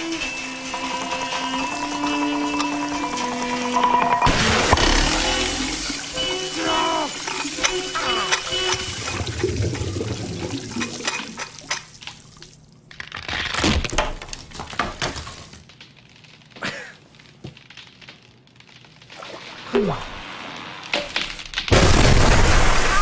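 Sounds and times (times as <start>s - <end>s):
water gushing and splashing: 0.1s - 12.8s, 19.0s - 21.3s.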